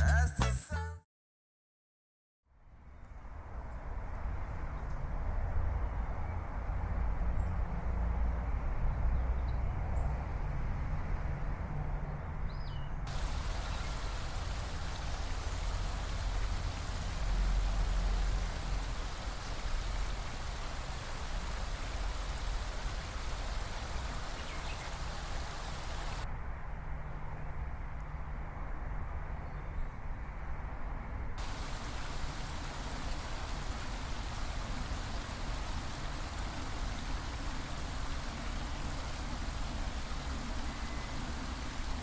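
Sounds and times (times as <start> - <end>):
waterfall rushing: 13.1 - 26.2, 31.4 - 42.0.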